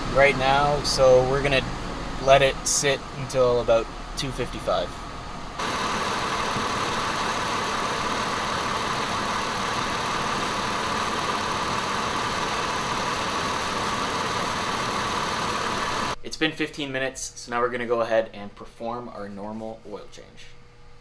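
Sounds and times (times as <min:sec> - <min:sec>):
car engine idling: 0:00.0 - 0:16.2.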